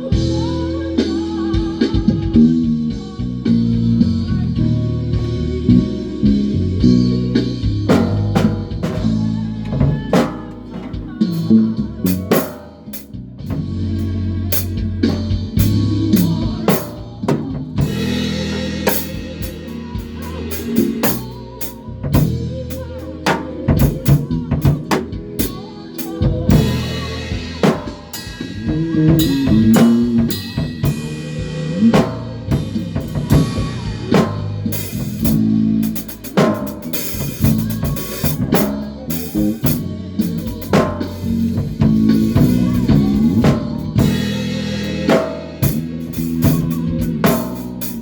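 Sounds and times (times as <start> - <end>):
low bass guitar notes: 0.0 - 25.6, 26.2 - 48.0
drum kit playing: 0.0 - 48.0.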